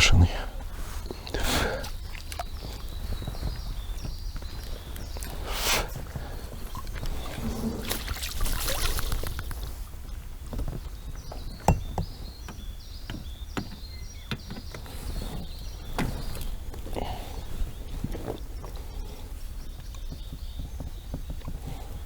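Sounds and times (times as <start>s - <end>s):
water splashing and sloshing: 1.0s - 3.7s, 5.0s - 9.8s
handling clicks and knocks: 10.5s - 15.0s.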